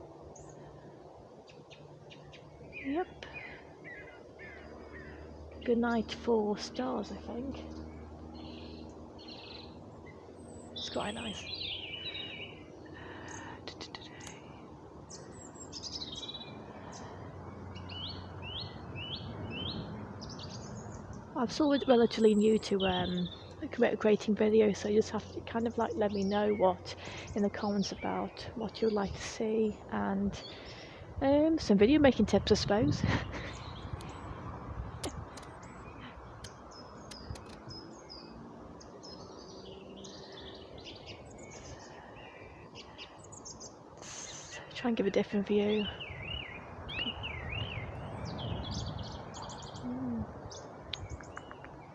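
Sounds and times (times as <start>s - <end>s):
birds singing: 0.0s - 51.9s.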